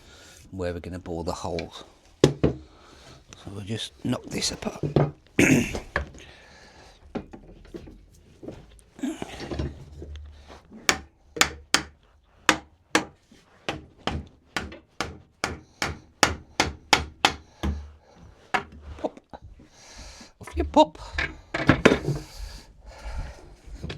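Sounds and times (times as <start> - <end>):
hammer knocking on wooden frame: 2.2 - 2.6, 10.8 - 17.9.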